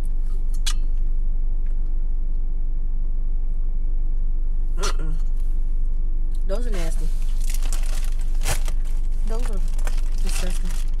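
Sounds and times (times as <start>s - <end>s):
car engine idling: 0.0s - 11.0s
short vocal noise: 4.8s - 5.4s
snack wrapper crinkling: 7.4s - 11.0s.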